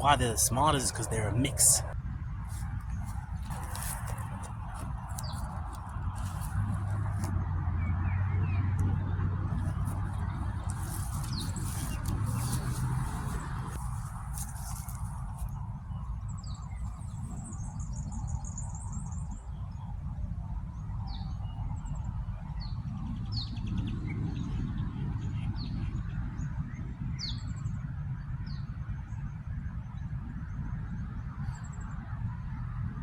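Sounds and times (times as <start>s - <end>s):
steady low rumble: 0.0s - 21.1s
small birds chirping: 9.6s - 18.8s.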